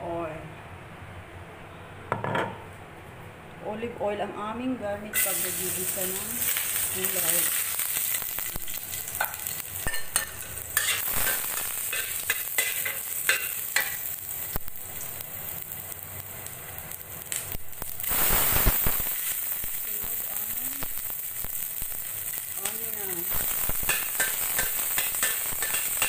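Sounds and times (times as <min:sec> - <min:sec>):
garlic sizzling in oil: 0:05.2 - 0:26.0.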